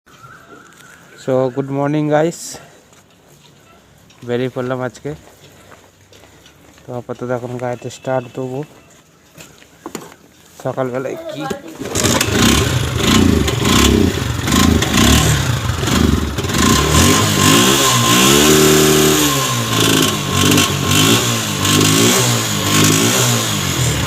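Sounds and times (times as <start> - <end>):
motorcycle engine revving: 11.8 - 24.0.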